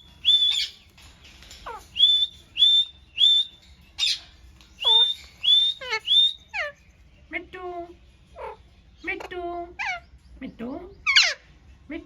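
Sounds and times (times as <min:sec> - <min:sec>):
parrot whistled calls: 0:00.0 - 0:00.8, 0:01.7 - 0:06.8.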